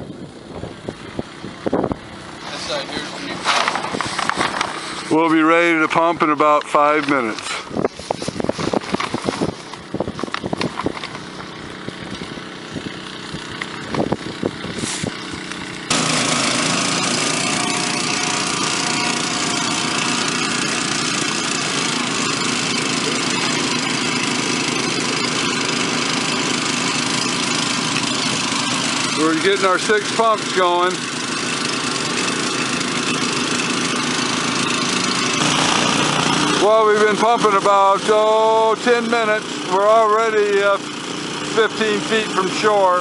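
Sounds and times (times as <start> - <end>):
water pump engines running: 0.0 - 43.0
handling clatter and knocks: 2.4 - 5.0, 6.9 - 12.3.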